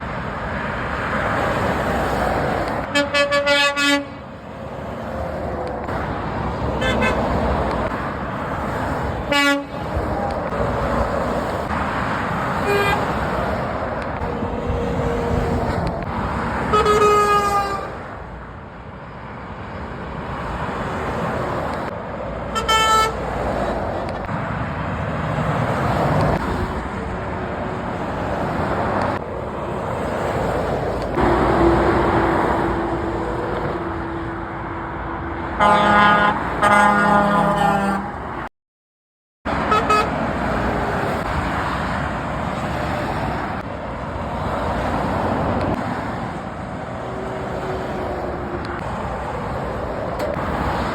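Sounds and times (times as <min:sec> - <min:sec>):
motorway traffic passing: 0:00.0 - 0:38.5, 0:39.5 - 0:50.9
lorry horn blasts: 0:02.9 - 0:04.2, 0:09.2 - 0:09.8, 0:16.7 - 0:18.0, 0:22.6 - 0:23.2, 0:35.6 - 0:38.1, 0:39.6 - 0:40.2.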